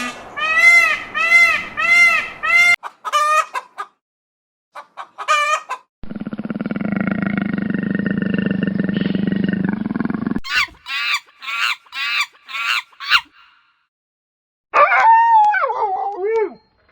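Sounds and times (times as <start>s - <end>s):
long rough low animal call: 6.0s - 10.4s.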